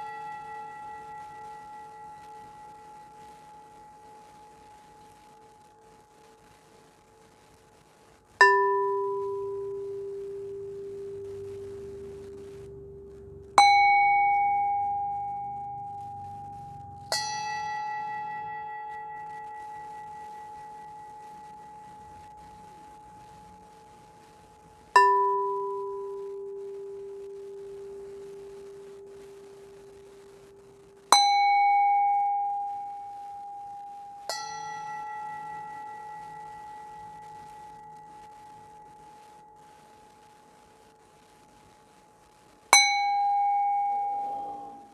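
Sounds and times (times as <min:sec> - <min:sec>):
ringing metal instrument strikes: 0:08.4 - 0:22.0, 0:31.1 - 0:39.0, 0:42.8 - 0:44.9
struck metal ringing instrument: 0:42.8 - 0:44.9.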